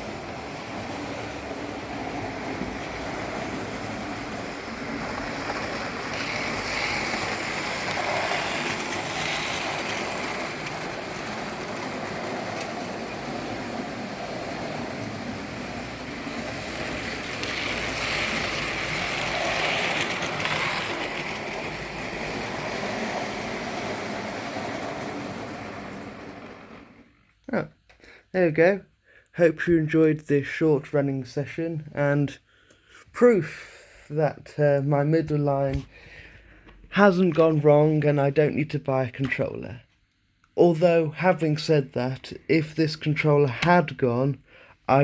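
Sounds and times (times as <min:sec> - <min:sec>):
model train whirring on track: 0:00.0 - 0:27.2.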